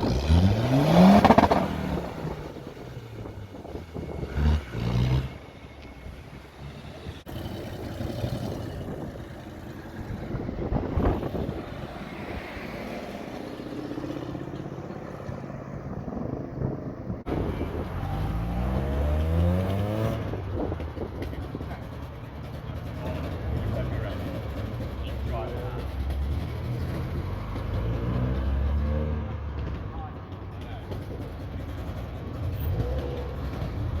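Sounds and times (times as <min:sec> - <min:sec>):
car accelerating hard: 0:00.0 - 0:29.8, 0:30.7 - 0:34.0
car engines driving off: 0:00.0 - 0:34.0.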